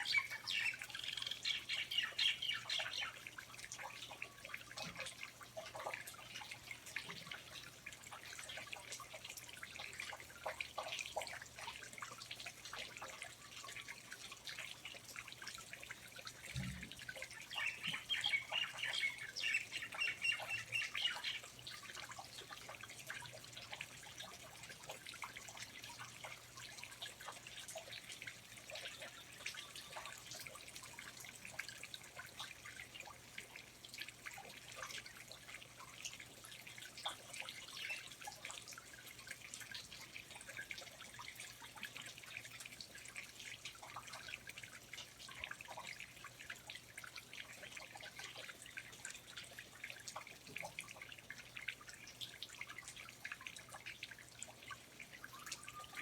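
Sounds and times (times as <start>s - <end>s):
water dripping: 0.0s - 56.0s
birds calling: 17.5s - 21.4s
bird high chirps: 55.3s - 56.0s.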